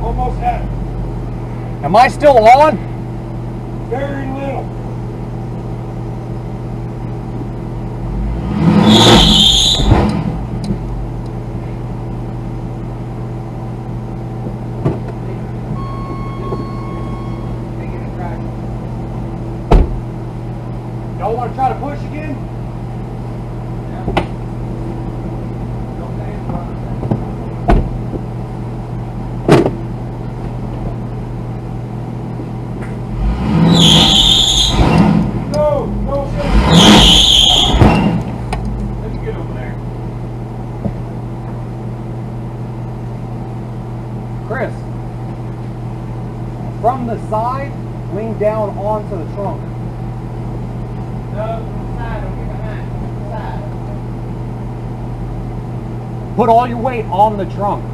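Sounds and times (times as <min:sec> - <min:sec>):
car engine idling and revving: 0:00.0 - 0:57.9
brief high squeal: 0:08.8 - 0:10.0, 0:15.8 - 0:17.6, 0:33.7 - 0:35.0, 0:36.6 - 0:38.2
sharp knocks: 0:19.7 - 0:20.0, 0:29.5 - 0:29.8.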